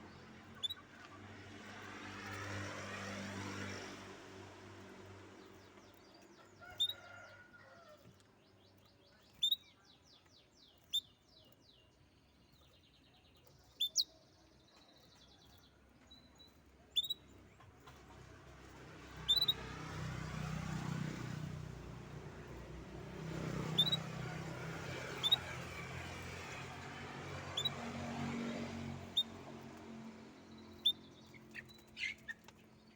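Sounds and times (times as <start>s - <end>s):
songbird chirping: 4.9s - 18.5s, 23.2s - 32.9s.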